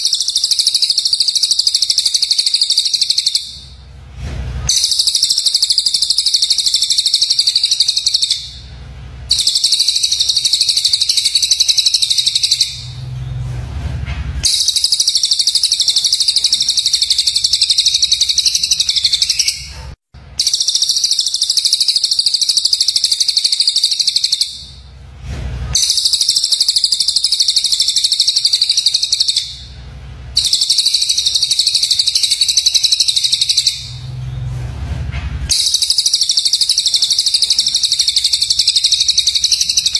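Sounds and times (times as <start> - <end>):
songbird buzzy chattering calls: 0.0 - 3.7, 4.7 - 8.7, 9.3 - 12.9, 25.8 - 29.7, 30.4 - 34.0, 35.5 - 39.9.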